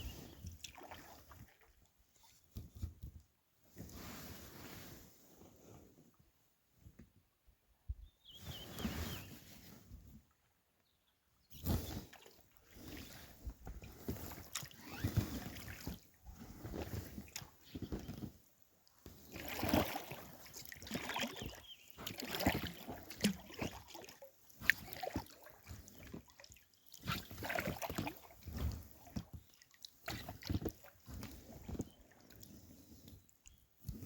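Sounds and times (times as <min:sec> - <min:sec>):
paddle splashing in river: 0:00.0 - 0:02.4, 0:11.5 - 0:34.0.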